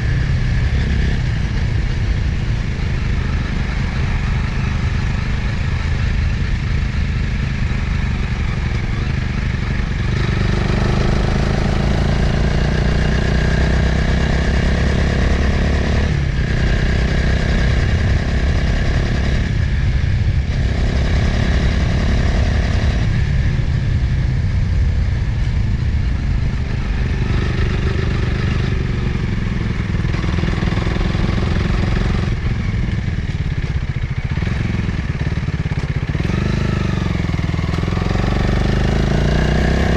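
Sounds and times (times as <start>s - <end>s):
motorcycle engine changing gears: 24.5s - 39.9s.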